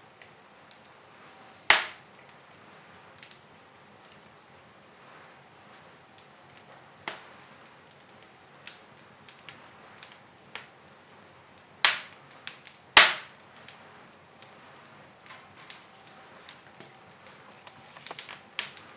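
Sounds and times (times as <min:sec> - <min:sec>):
wood fire crackling and popping: 0:00.0 - 0:18.9
loud wood cracks: 0:13.0 - 0:13.4.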